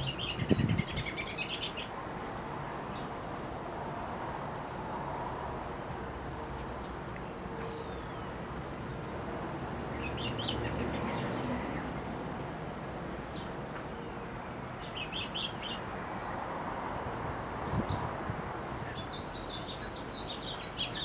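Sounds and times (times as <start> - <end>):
small birds chirping: 18.9 - 21.0.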